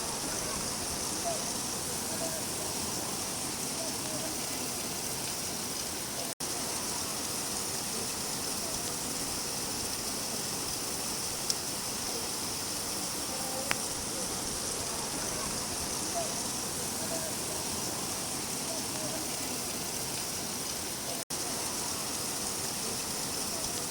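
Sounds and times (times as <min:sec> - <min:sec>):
steady rain falling: 0:00.0 - 0:23.9
faint ticks: 0:13.4 - 0:13.9.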